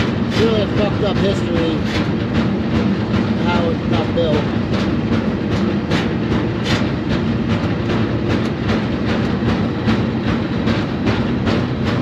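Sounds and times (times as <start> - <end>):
freight car rumbling on rails: 0.0 - 12.0
rhythmic wheel clicks: 0.0 - 12.0.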